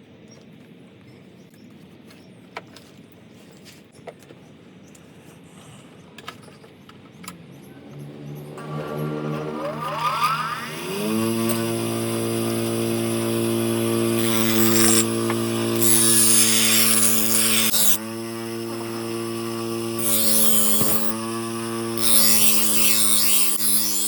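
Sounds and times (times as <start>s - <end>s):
grinder motor humming: 7.8s - 24.0s
grinder hissing on metal: 8.5s - 24.0s.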